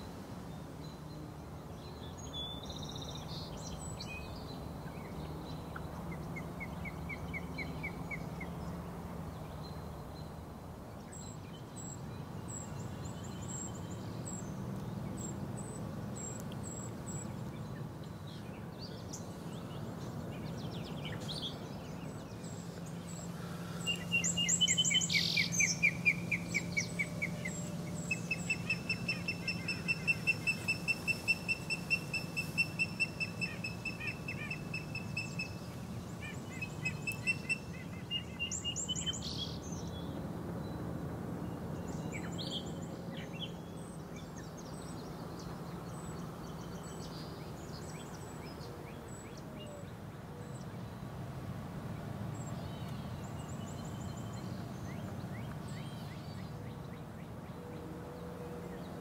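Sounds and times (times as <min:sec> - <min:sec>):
songbirds trilling: 0:00.0 - 0:40.8
low background noise: 0:00.0 - 0:59.0.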